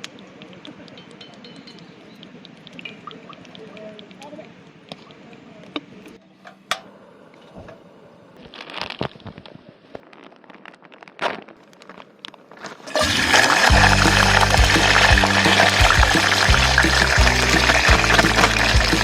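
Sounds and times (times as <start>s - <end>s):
crackles and sharp clicks: 0.0s - 6.8s, 8.4s - 19.0s
loud background music: 13.6s - 19.0s.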